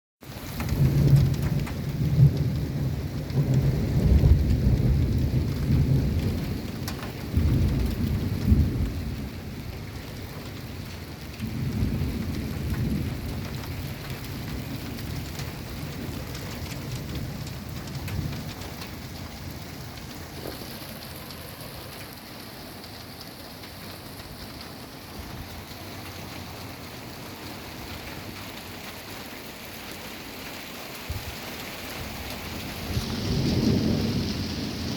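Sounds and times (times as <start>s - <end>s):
steady rain: 0.2s - 34.9s
rolling thunder: 0.5s - 10.6s, 11.4s - 22.1s, 31.1s - 34.9s.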